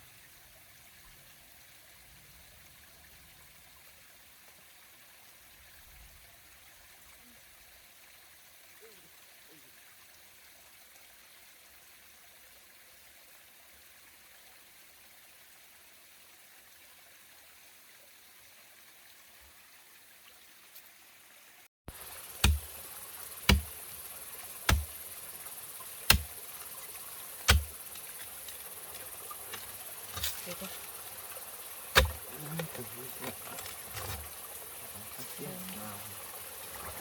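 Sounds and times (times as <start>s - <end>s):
faint rushing water: 0.0s - 37.0s
high insect drone: 21.9s - 37.0s
sharp knocks: 22.4s - 22.7s, 23.5s - 23.8s, 24.7s - 25.0s, 26.1s - 26.3s, 27.5s - 27.8s, 32.0s - 32.2s.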